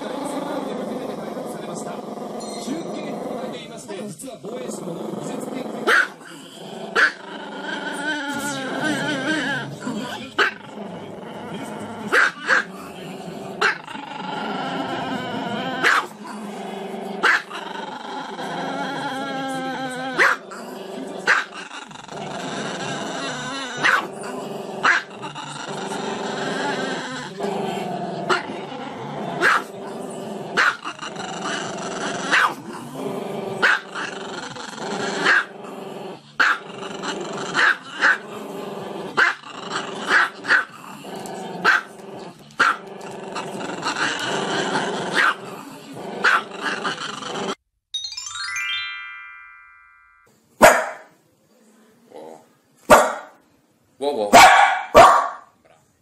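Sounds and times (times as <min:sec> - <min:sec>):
small dog yapping: 0:32.3 - 0:32.6, 0:54.4 - 0:55.4.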